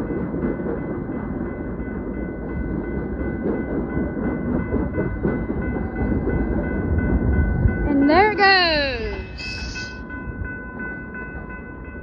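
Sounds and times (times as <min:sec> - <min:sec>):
crossing warning bell ringing: 0:00.0 - 0:12.0
freight train wheels rumbling: 0:00.0 - 0:12.0.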